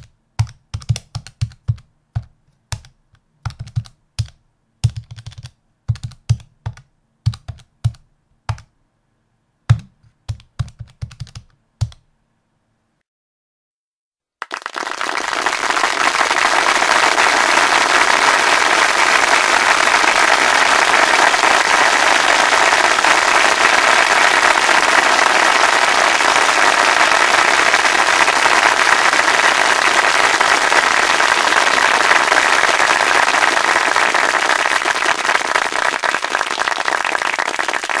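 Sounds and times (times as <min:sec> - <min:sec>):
crowd applause: 0:14.4 - 0:38.0.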